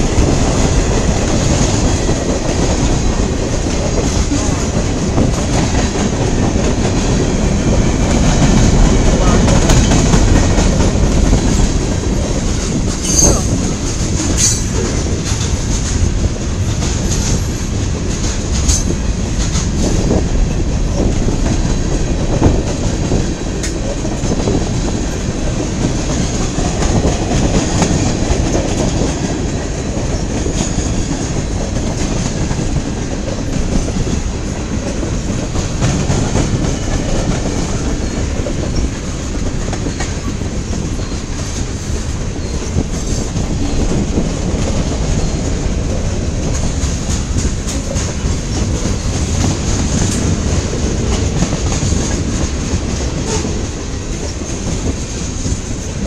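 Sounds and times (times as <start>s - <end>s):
freight train rumbling past: 0.0s - 56.0s
wheel squeal on rail: 13.0s - 14.9s, 36.7s - 43.8s, 53.2s - 53.6s.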